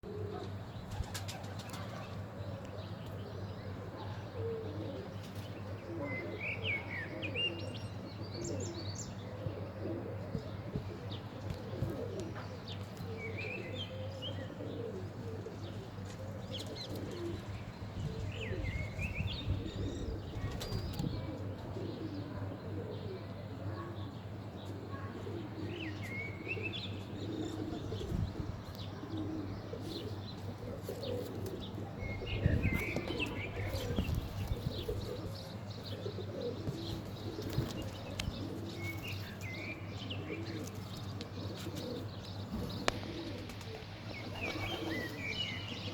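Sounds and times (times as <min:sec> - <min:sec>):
pigeons cooing: 0:00.0 - 0:45.9
wings flapping: 0:42.6 - 0:45.2.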